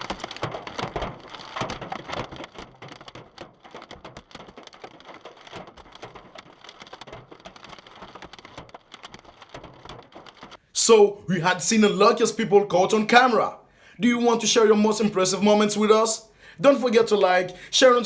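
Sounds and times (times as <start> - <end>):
hail clattering on car: 0.0 - 10.5.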